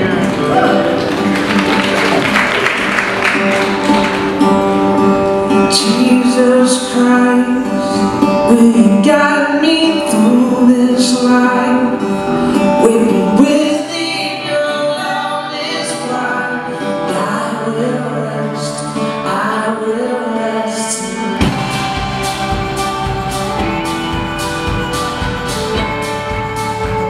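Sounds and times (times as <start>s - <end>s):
drums: 0.0s - 14.5s, 21.0s - 27.0s
acoustic guitar: 0.0s - 27.0s
bass: 0.0s - 27.0s
person singing: 5.1s - 27.0s.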